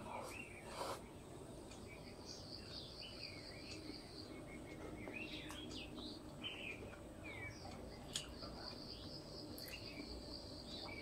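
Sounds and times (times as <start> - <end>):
faint whistled birdsong: 0.0 - 11.0
low steady background noise: 0.0 - 11.0.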